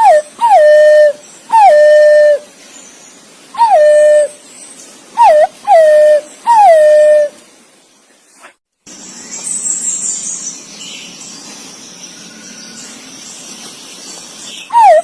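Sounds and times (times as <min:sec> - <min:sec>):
pigeon whistled calls: 0:00.0 - 0:02.4, 0:03.6 - 0:04.4, 0:05.2 - 0:07.3, 0:14.7 - 0:15.0.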